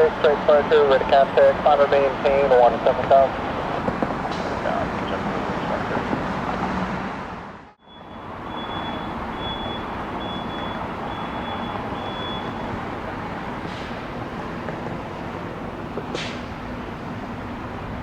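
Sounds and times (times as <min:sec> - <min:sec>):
jet engine roar: 0:00.0 - 0:07.8
high electronic beep: 0:07.8 - 0:12.6.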